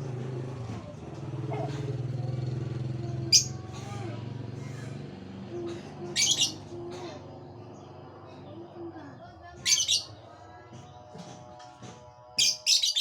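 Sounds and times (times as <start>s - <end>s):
engine humming: 0.0s - 12.3s
bird squawking: 3.3s - 3.6s, 6.1s - 6.6s, 9.6s - 10.2s, 12.4s - 13.0s.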